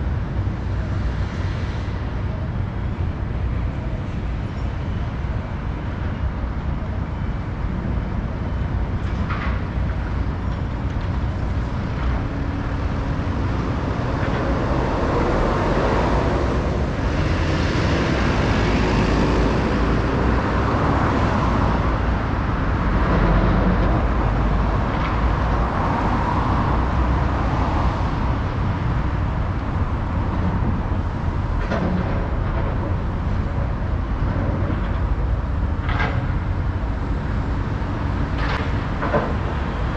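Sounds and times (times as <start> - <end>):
low traffic rumble: 0.0 - 39.9
vehicles passing: 0.0 - 39.9.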